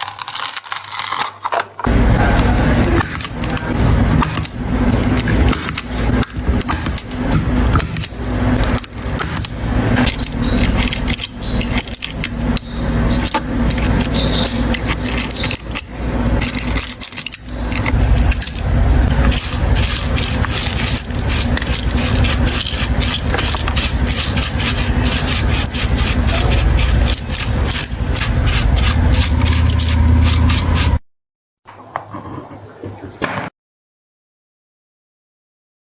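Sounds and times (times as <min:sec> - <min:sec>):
steady low hum: 0:01.9 - 0:31.0
rubbing and scraping strokes: 0:02.3 - 0:31.0.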